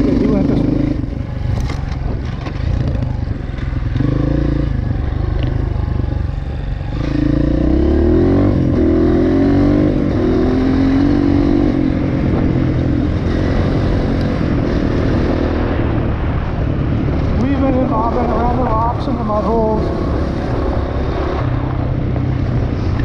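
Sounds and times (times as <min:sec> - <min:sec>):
dirt bike engine revving: 0:06.9 - 0:16.0.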